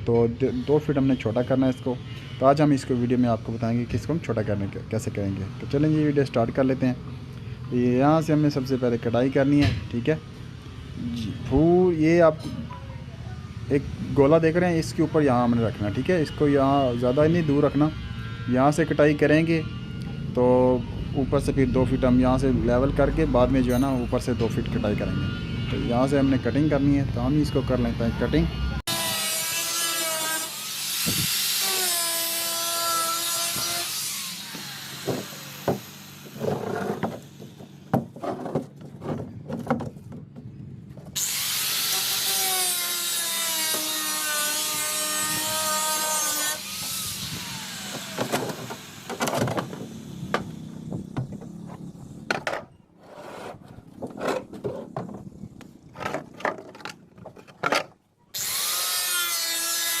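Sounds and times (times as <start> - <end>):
power tool cutting fiberglass: 28.9 - 38.0, 41.2 - 52.0, 58.4 - 60.0
knocks and clicks of handling: 36.4 - 41.2.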